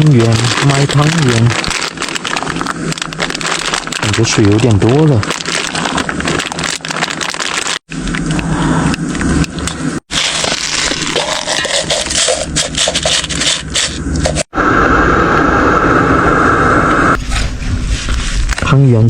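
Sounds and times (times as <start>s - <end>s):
crackling: 0.0s - 14.6s.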